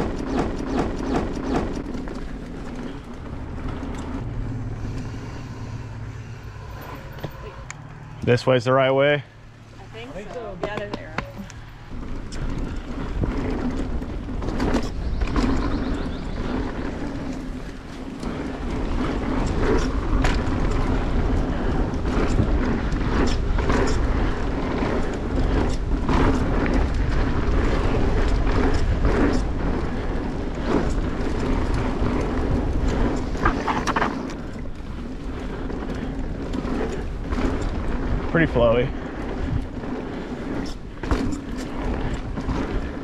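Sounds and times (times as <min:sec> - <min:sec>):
bike rattling over bumps: 0:00.0 - 0:43.0
bike tyres rumbling over dirt: 0:00.0 - 0:43.0
wind on microphone: 0:09.8 - 0:43.0.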